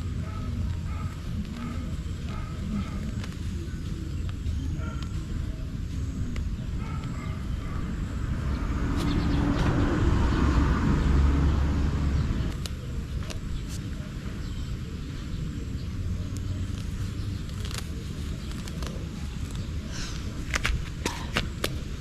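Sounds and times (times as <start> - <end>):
steady low rumble: 0.0 - 22.0
vehicle passing by: 7.4 - 12.6.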